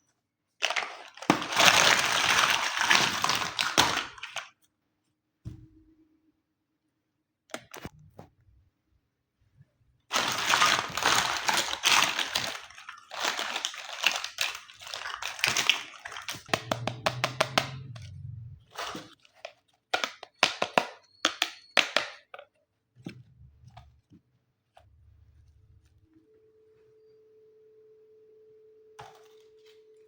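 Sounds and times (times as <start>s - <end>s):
plastic packaging crinkling: 0.6s - 4.6s, 10.1s - 16.8s.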